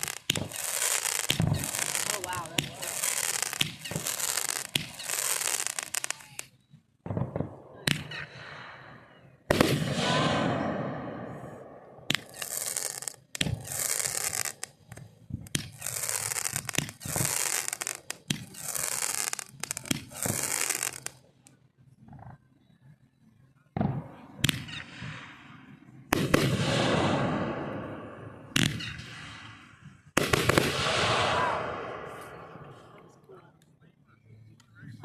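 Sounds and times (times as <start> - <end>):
fireworks bangs: 0.0 - 21.2, 23.8 - 33.0
fireworks crackling and hissing: 0.0 - 22.4, 23.8 - 35.0
rumble and crackle: 12.0 - 26.6.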